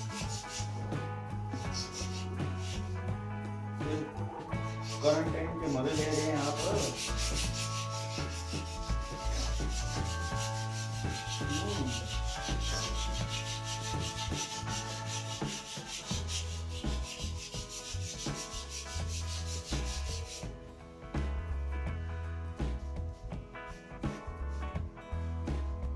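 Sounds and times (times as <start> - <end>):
sandpaper rubbing on wood: 0.0 - 3.0, 4.0 - 20.4
background music: 0.0 - 25.9.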